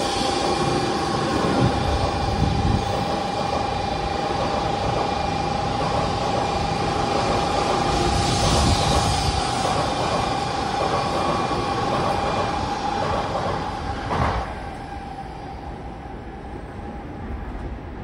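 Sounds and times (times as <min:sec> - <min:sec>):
bullet train rushing past: 0:00.0 - 0:18.0.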